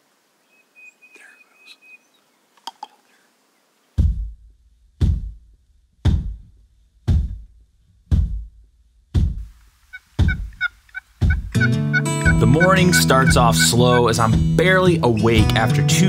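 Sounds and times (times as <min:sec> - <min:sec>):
deep bass drum beating: 0:04.0 - 0:09.5, 0:10.2 - 0:15.7.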